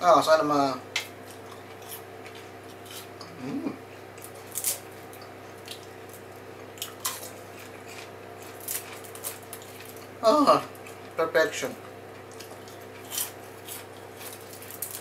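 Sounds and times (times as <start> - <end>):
person chewing crunchy popcorn: 1.2 - 3.3, 4.1 - 11.2, 11.8 - 15.0
person humming: 3.2 - 3.8.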